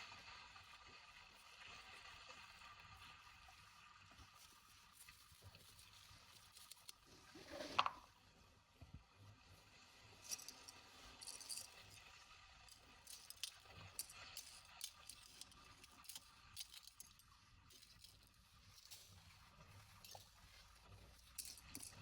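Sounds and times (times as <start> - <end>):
small hard objects clicking: 10.3 - 19.0, 21.2 - 22.0.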